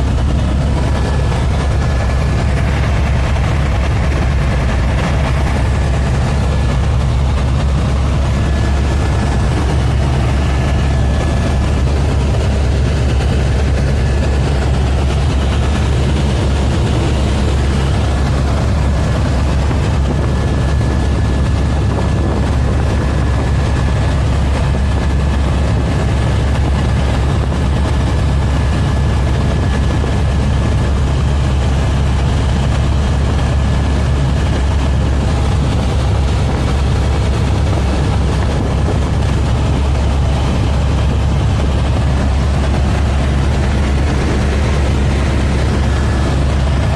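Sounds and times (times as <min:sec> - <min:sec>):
helicopter engine and rotor drone: 0:00.0 - 0:46.9.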